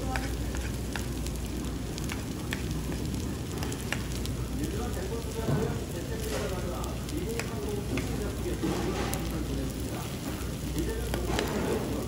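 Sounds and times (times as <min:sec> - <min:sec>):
spatula scraping pan: 0:00.0 - 0:01.1
fried rice sizzling on griddle: 0:00.0 - 0:12.0.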